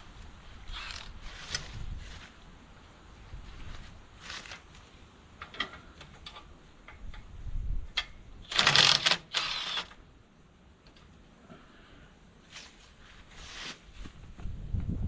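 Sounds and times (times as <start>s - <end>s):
metal clicks and knocks: 5.4s - 7.3s.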